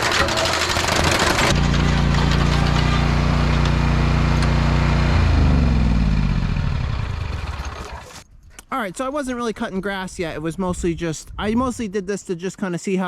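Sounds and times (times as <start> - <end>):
mower engine running: 0.0 - 8.2.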